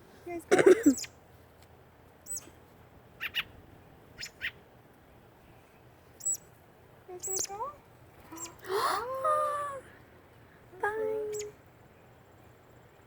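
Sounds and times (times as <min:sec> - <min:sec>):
young birds chirping: 0:00.9 - 0:01.2, 0:02.2 - 0:02.6, 0:03.2 - 0:04.6, 0:05.4 - 0:08.7, 0:10.3 - 0:13.0.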